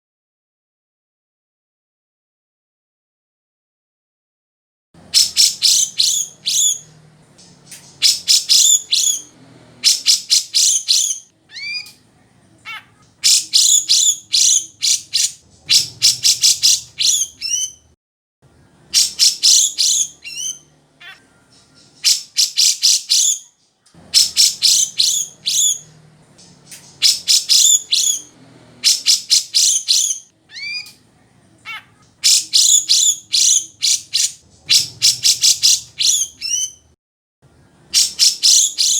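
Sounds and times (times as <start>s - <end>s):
bird singing rapid high notes: 5.0s - 17.9s, 18.5s - 31.0s, 31.6s - 36.9s, 37.9s - 38.9s
bird slurred falling whistles: 5.1s - 6.9s, 7.8s - 11.9s, 13.2s - 17.8s, 24.2s - 25.9s, 26.8s - 30.9s.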